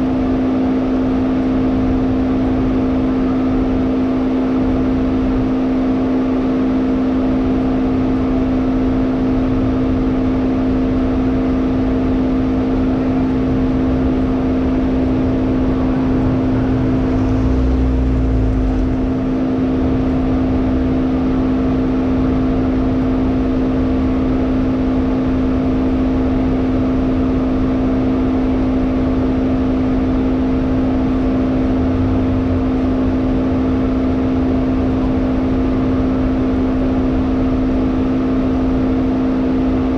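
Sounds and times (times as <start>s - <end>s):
car engine and road drone: 0.0s - 39.9s
low rumble: 13.1s - 22.2s.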